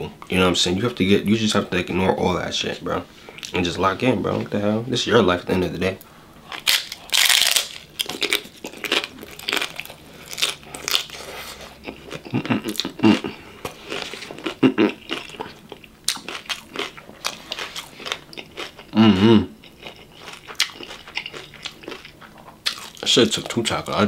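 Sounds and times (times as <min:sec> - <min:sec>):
crunching and wet chewing: 0:06.5 - 0:19.0, 0:19.6 - 0:24.0
person humming mm: 0:19.0 - 0:19.6.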